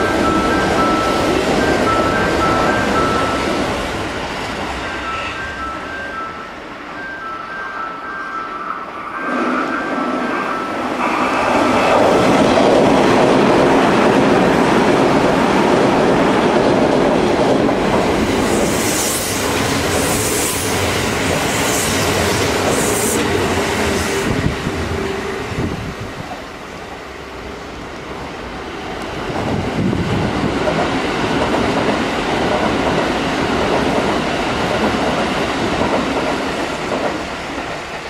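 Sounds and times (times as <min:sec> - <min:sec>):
train wheels rumbling on rails: 0:08.9 - 0:38.0.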